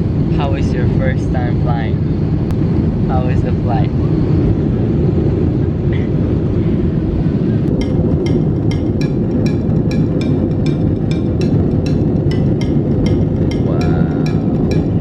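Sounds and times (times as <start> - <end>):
airliner cabin roar: 0.0 - 15.0
ticking music beat: 7.7 - 15.0.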